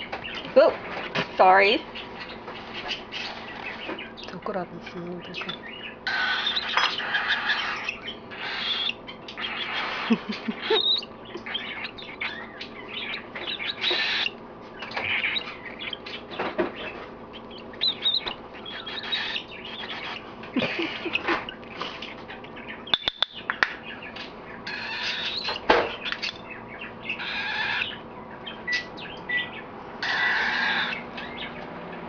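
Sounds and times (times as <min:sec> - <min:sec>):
high bird chirps: 0:05.3 - 0:31.6
baby cockatiel begging calls: 0:06.0 - 0:14.3, 0:17.8 - 0:20.2, 0:24.6 - 0:26.3, 0:27.1 - 0:28.0, 0:29.4 - 0:31.4.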